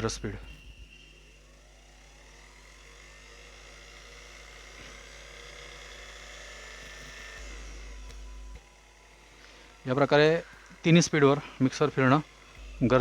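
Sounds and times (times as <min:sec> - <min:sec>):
electric motor whine: 0:00.0 - 0:13.0
steady low hum: 0:00.0 - 0:13.0.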